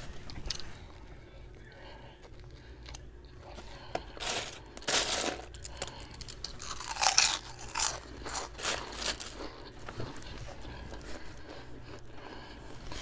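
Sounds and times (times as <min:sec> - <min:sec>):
person crunching crusty bread: 0:04.2 - 0:13.0.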